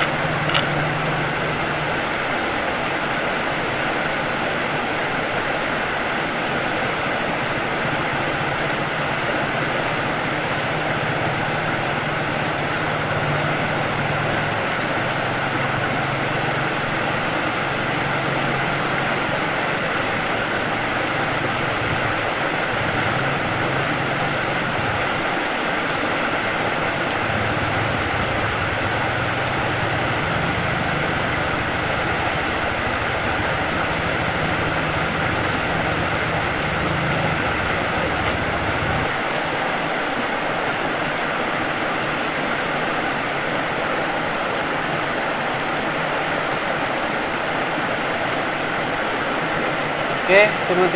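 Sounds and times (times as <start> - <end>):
low engine hum: 0.0 - 2.4, 7.6 - 25.8, 26.4 - 39.2
river water rushing: 0.0 - 50.9.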